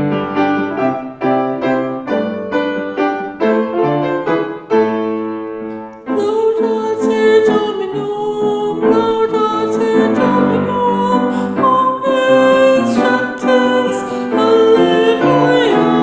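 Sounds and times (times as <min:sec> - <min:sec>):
piano broken chords: 0:00.0 - 0:16.0
person singing a chant: 0:06.1 - 0:16.0.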